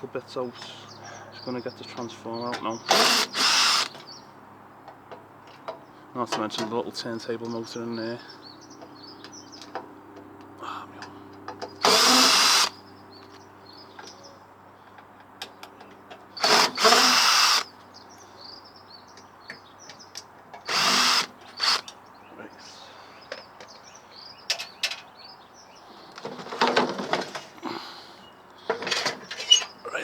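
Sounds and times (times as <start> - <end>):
cordless drill bursts: 2.9 - 4.0, 11.8 - 12.8, 16.4 - 17.7, 20.7 - 21.9.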